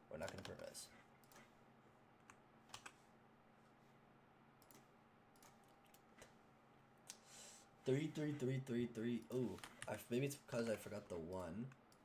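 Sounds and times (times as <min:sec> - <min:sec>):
computer keyboard keystrokes: 0:00.2 - 0:00.6, 0:02.3 - 0:03.0.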